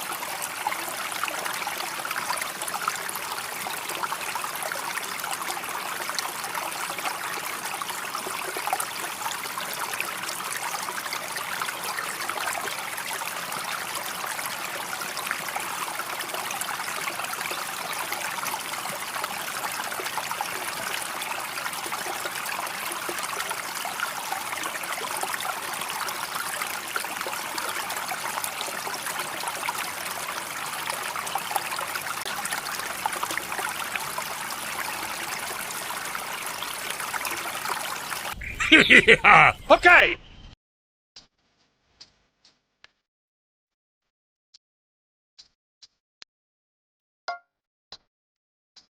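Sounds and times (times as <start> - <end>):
water running and splashing: 0.0 - 40.0.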